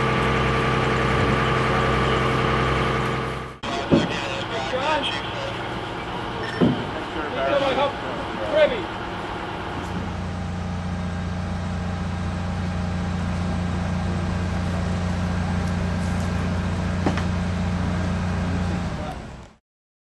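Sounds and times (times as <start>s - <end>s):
crane engine humming under load: 0.0s - 19.6s
brief knock: 17.0s - 17.3s.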